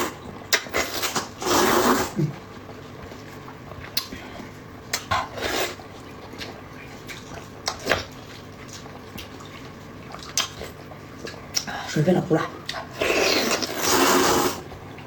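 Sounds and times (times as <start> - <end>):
chewing mouth noises: 2.2 - 11.8.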